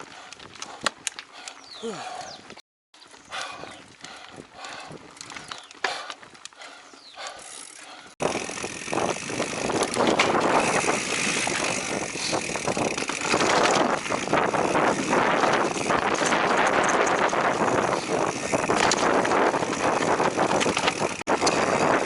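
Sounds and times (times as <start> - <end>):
bike rattling: 0.0 - 22.0
tyres on dirt and rock: 0.0 - 22.0.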